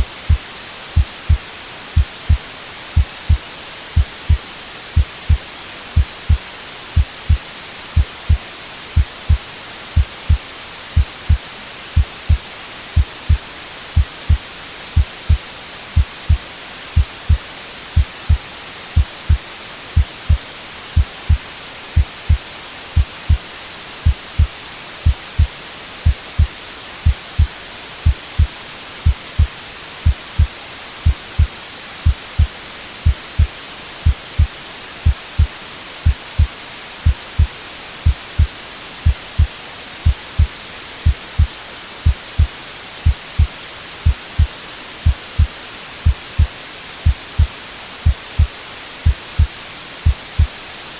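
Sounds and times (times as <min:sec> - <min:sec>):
white noise hiss: 0:00.0 - 0:50.9
heartbeat thumping: 0:01.0 - 0:01.4, 0:02.0 - 0:02.4, 0:03.0 - 0:03.4, 0:04.0 - 0:04.4, 0:05.0 - 0:05.4, 0:06.0 - 0:06.4, 0:07.0 - 0:07.4, 0:08.0 - 0:08.4, 0:09.0 - 0:09.4, 0:10.0 - 0:10.4, 0:11.0 - 0:11.4, 0:12.0 - 0:12.4, 0:13.0 - 0:13.4, 0:14.0 - 0:14.4, 0:15.0 - 0:15.4, 0:16.0 - 0:16.4, 0:17.0 - 0:17.4, 0:18.0 - 0:18.4, 0:19.0 - 0:19.4, 0:20.0 - 0:20.4, 0:21.0 - 0:21.4, 0:22.0 - 0:22.4, 0:23.0 - 0:23.4, 0:24.0 - 0:50.5.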